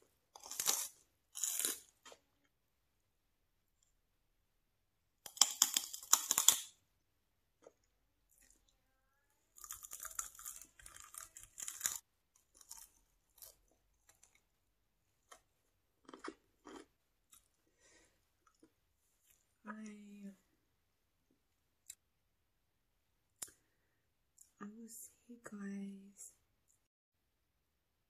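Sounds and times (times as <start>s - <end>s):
crunching bites: 0.3s - 2.3s, 5.2s - 6.8s, 9.5s - 14.5s, 15.2s - 17.6s
tearing meat with teeth: 0.4s - 2.2s, 5.3s - 6.8s, 9.6s - 14.4s
chewing and mouth clicks: 16.0s - 17.6s.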